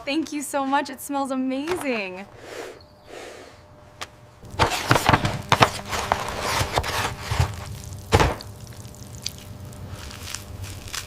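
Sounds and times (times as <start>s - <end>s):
loud thud: 8.1s - 8.5s.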